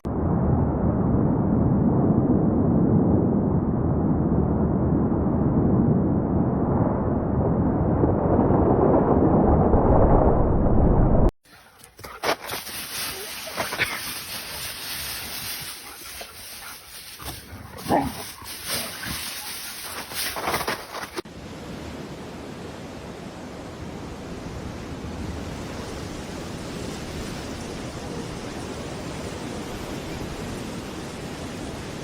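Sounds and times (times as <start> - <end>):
dog barking: 15.8 - 20.4.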